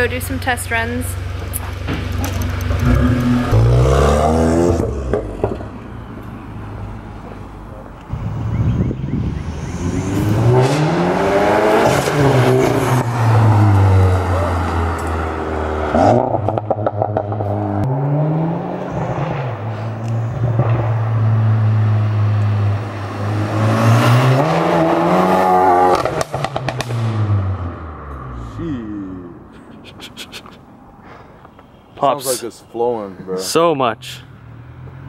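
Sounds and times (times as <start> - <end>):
car engine accelerating hard: 1.8 - 5.7, 9.2 - 28.6.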